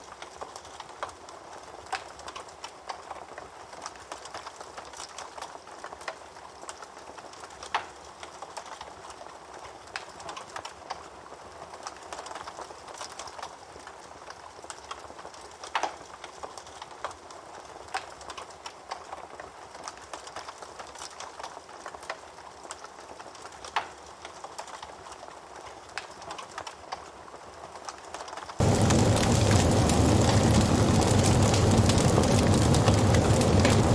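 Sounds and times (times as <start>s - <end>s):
burning wood crackling and popping: 0.0s - 33.9s
hiss of flames: 28.6s - 33.9s.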